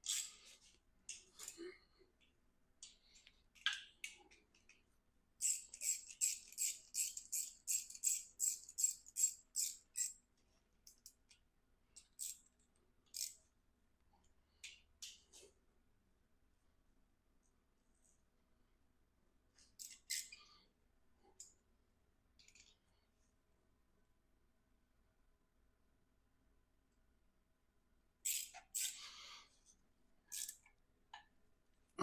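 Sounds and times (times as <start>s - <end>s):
ratchet wrench clicking: 5.4s - 10.2s, 12.0s - 12.4s, 13.1s - 13.4s, 28.2s - 29.0s, 30.3s - 30.7s.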